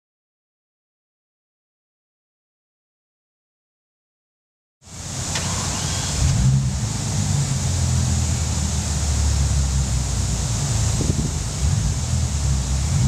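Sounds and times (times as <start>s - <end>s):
car engine idling: 4.8s - 13.0s.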